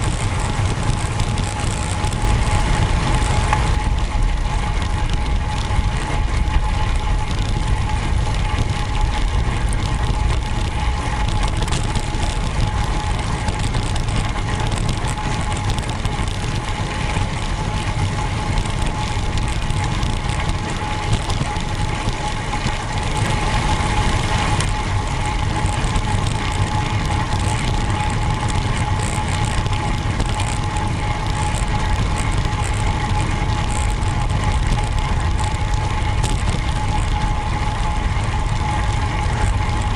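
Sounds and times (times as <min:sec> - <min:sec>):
road bike riding noise: 0:00.0 - 0:39.9.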